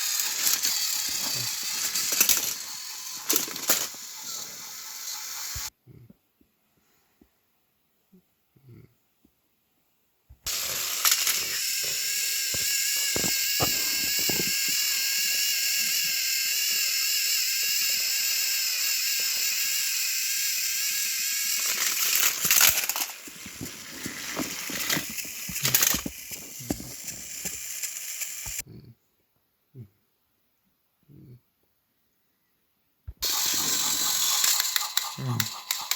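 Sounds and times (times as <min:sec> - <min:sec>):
toy train motors whining: 0:00.0 - 0:05.7, 0:10.4 - 0:28.6, 0:33.2 - 0:35.9.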